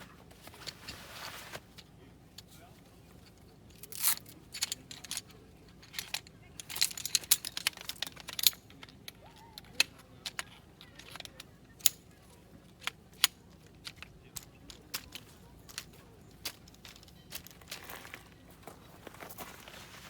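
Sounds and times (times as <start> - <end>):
rustling: 0.0 - 20.0
hard objects clicking: 3.2 - 18.5.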